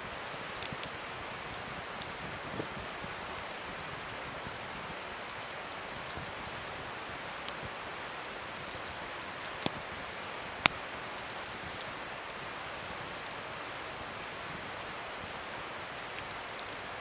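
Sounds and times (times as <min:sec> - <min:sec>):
wood fire crackling: 0:00.0 - 0:17.0
sharp fire pops: 0:08.3 - 0:16.8.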